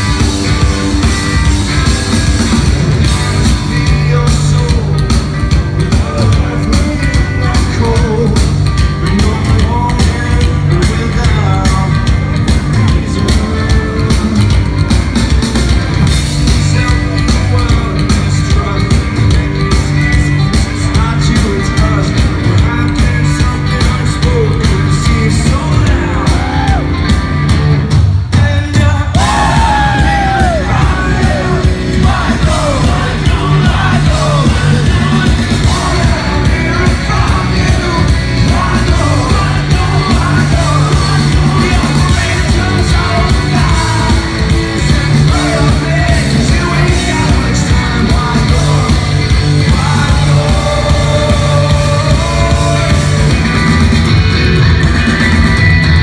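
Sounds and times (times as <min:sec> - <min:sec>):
live rock band playing: 0:00.0 - 0:56.0
person shouting vocals: 0:29.2 - 0:31.6.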